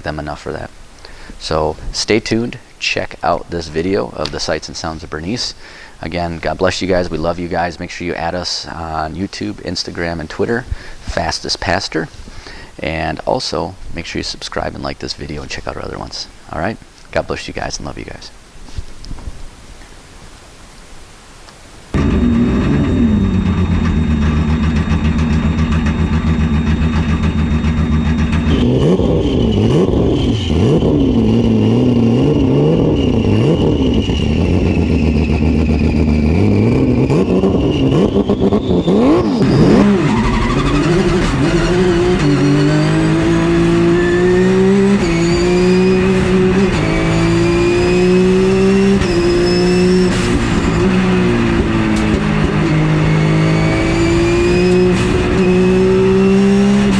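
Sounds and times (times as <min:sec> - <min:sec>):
race car engine revving: 0:22.0 - 0:56.9.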